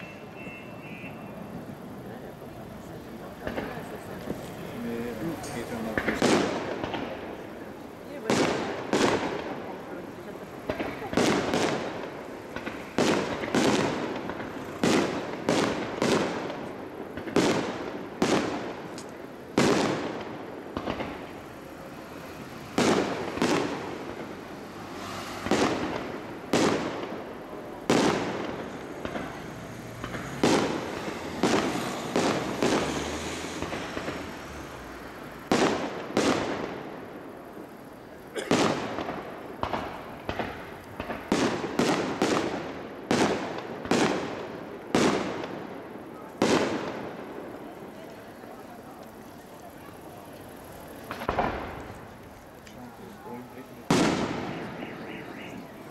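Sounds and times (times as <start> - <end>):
firework shells bursting: 5.3 - 21.7, 22.7 - 45.6, 50.4 - 55.8.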